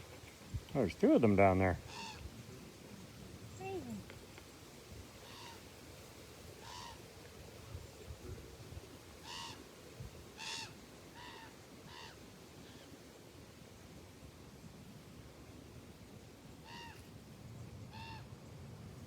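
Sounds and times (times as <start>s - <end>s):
bird calling harshly: 1.9s - 2.2s, 6.6s - 7.0s, 9.2s - 9.6s, 10.4s - 12.2s.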